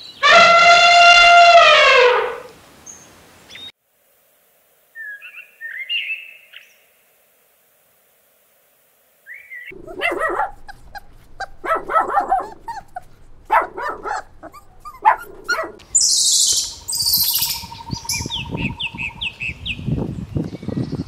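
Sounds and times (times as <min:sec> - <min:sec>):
dog barking: 0:09.7 - 0:15.8
birds chirping: 0:09.7 - 0:19.8.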